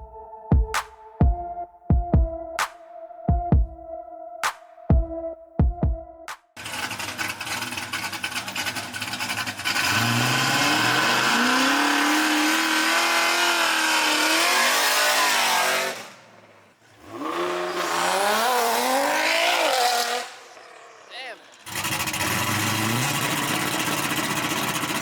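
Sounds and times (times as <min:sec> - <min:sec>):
race car engine at full throttle: 0:06.6 - 0:25.0.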